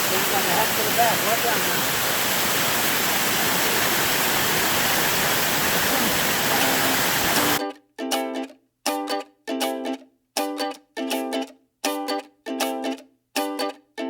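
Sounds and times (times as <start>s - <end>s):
waterfall rushing: 0.0s - 7.6s
plucked-string music: 7.6s - 14.0s.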